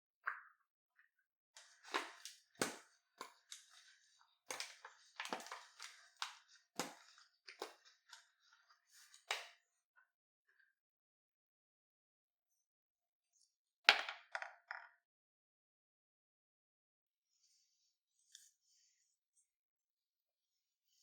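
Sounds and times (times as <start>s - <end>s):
objects clicking and knocking: 4.5s - 7.8s.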